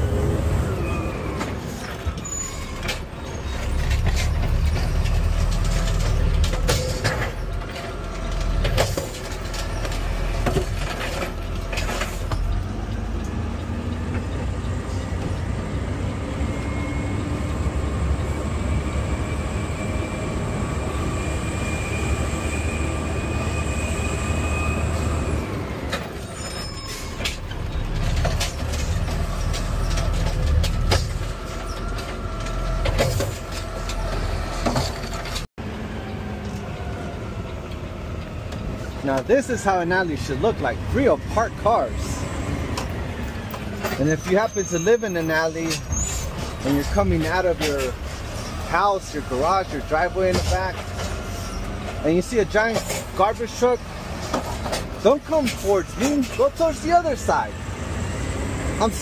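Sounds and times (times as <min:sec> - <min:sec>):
diesel engine and hydraulics rumbling: 0:00.0 - 0:59.0
knocks and clatter: 0:02.8 - 0:14.5, 0:27.1 - 0:35.5.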